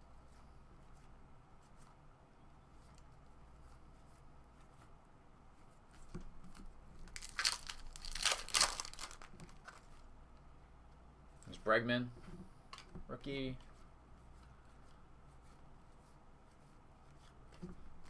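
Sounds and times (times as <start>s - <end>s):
faint room hum: 0.0s - 18.0s
wrapper tearing and crinkling: 7.1s - 10.0s.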